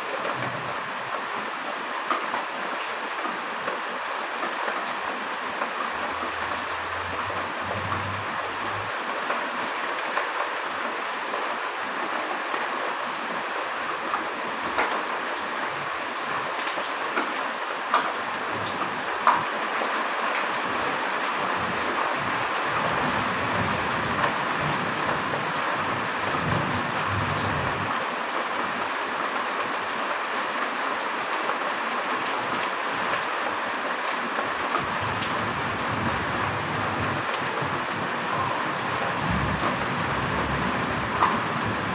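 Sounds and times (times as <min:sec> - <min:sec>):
heavy rain falling: 0:00.0 - 0:41.9
raindrop taps: 0:03.7 - 0:09.4, 0:16.6 - 0:19.6, 0:21.5 - 0:27.9, 0:34.7 - 0:41.9.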